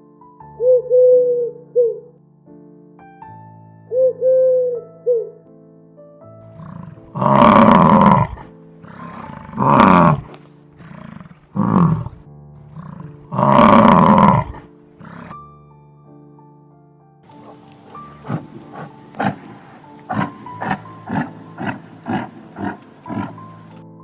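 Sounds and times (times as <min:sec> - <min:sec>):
background music: 0:00.0 - 0:24.0
animal calling: 0:06.5 - 0:15.3, 0:17.3 - 0:23.8.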